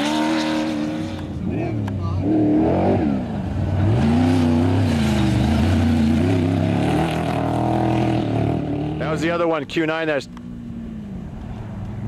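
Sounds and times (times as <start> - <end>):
race vehicle engine revving: 0.0 - 9.5.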